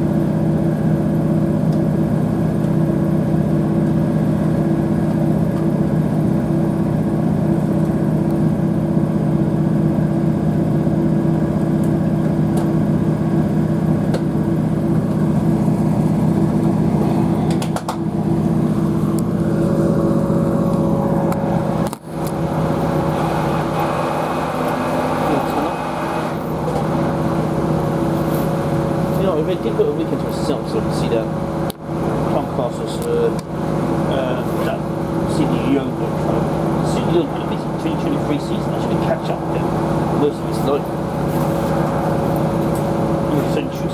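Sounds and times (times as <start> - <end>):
diesel train engine drone: 0.0 - 43.9
wheels rumbling on track: 0.0 - 43.9.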